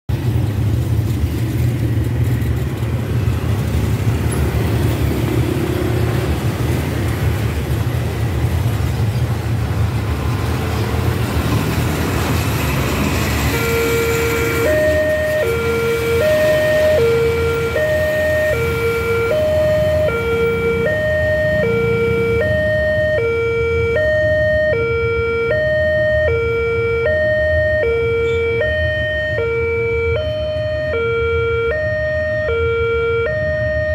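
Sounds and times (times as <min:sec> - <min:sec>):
road traffic engine rumble: 0:00.1 - 0:33.9
level-crossing warning alarm: 0:12.5 - 0:33.9.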